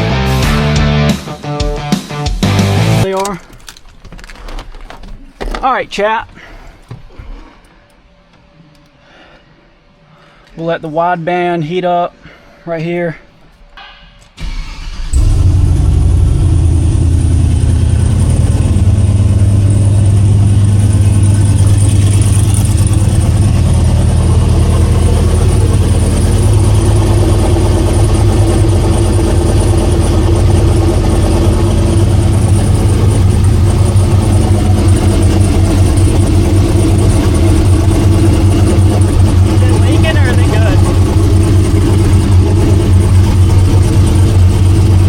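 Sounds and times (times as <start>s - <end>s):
truck engine starting and idling: 0.0s - 8.9s, 13.8s - 45.0s
turbo whine: 14.3s - 45.0s.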